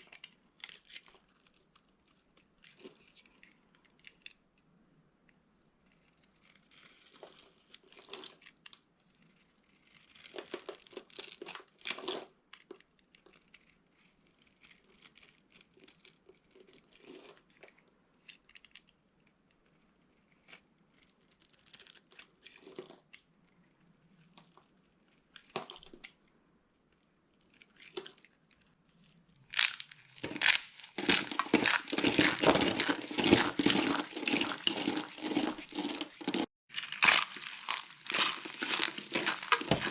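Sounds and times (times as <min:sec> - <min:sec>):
bar soap crunching: 0:00.0 - 0:04.4, 0:05.9 - 0:17.3, 0:29.4 - 0:39.9.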